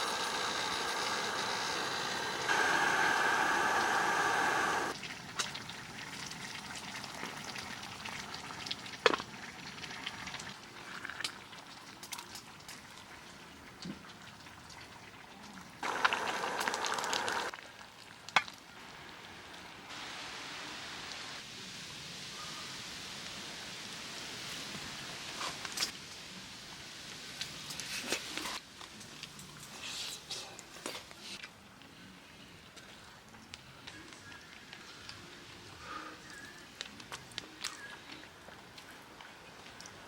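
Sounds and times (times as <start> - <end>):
food sizzling in a pan: 0.0 - 5.0, 15.8 - 17.6, 18.9 - 25.7.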